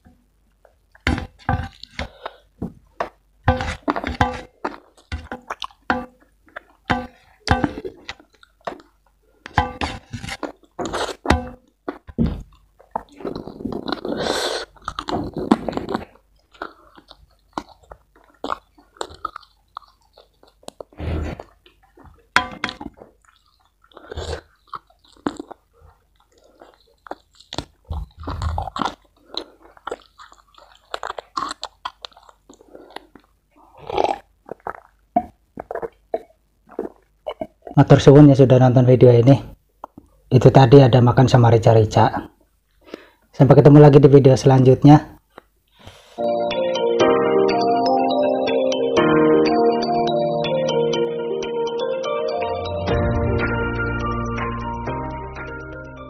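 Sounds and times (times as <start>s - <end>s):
wet chewing and crunching: 0.6s - 38.0s.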